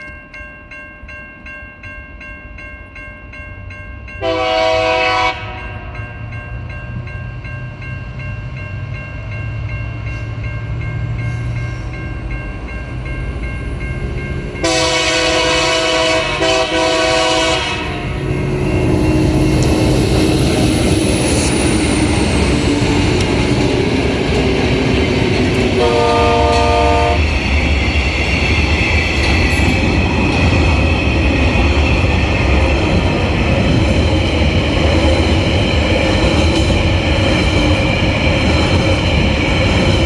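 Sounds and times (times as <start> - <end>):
crossing warning bells ringing: 0.0 - 40.0
locomotive engine and wheels: 0.0 - 40.0
locomotive air horn blasts: 4.2 - 6.0, 14.6 - 18.2, 25.8 - 27.2.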